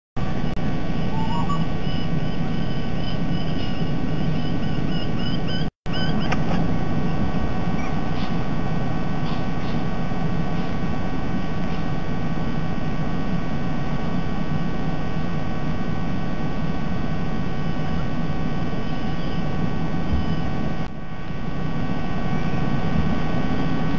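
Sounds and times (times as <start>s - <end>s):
faint steady whine: 0.2s - 23.9s
small bird chirping: 1.0s - 6.4s, 7.8s - 8.4s, 9.2s - 9.9s, 18.8s - 20.5s.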